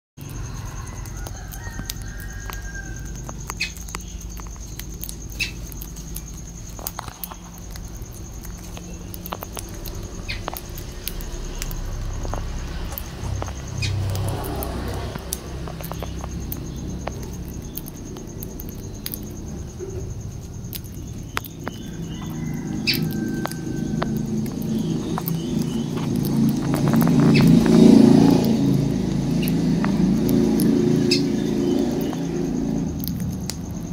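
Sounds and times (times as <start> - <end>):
sharp clicks: 1.0 - 19.4, 20.3 - 27.8
bird chirps: 2.5 - 6.4, 13.0 - 20.0.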